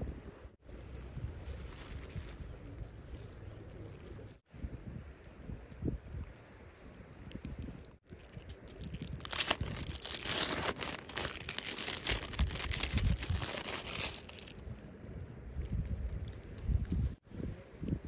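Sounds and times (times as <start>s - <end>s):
plastic crinkling and rustling: 0.7s - 4.3s, 8.1s - 14.9s, 15.6s - 17.2s.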